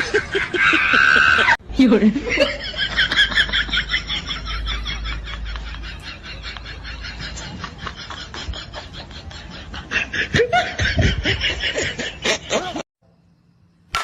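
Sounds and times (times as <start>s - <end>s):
person laughing: 2.2s - 12.8s.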